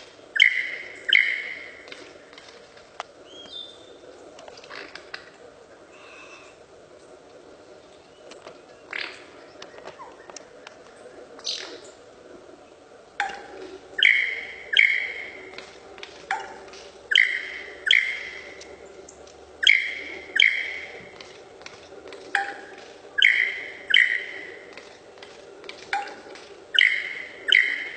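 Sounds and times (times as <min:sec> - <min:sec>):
bird ringing calls: 0:00.0 - 0:02.4, 0:13.2 - 0:15.7, 0:16.3 - 0:21.4, 0:22.3 - 0:24.9, 0:25.8 - 0:27.9.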